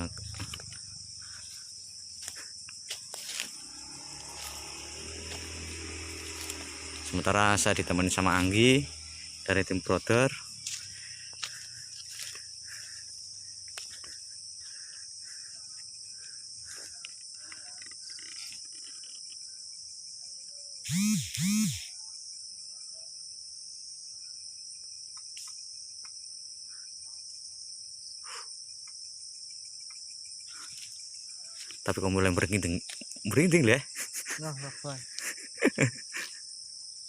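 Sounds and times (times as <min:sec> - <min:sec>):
crickets and night insects: 0:00.0 - 0:37.0
rising and falling pitched calls: 0:03.4 - 0:11.1.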